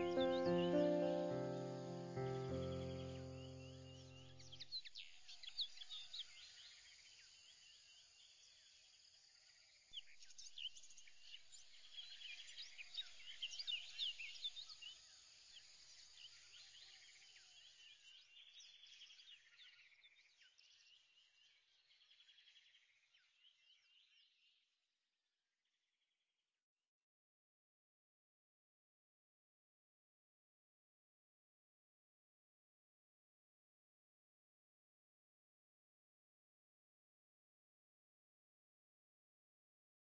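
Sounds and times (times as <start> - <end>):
small birds chirping: 0.0 - 8.8, 10.0 - 24.5.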